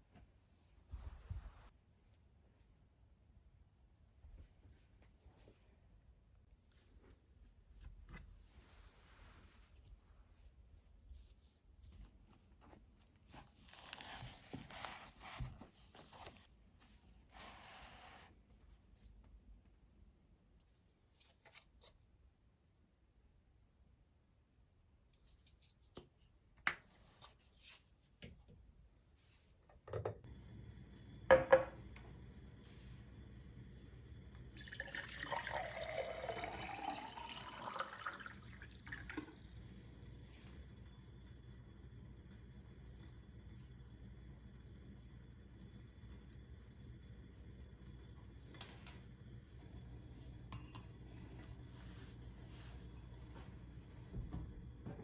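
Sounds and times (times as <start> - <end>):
rustling and scraping: 0.0 - 1.8, 6.6 - 19.1
water running into a container: 30.3 - 50.1.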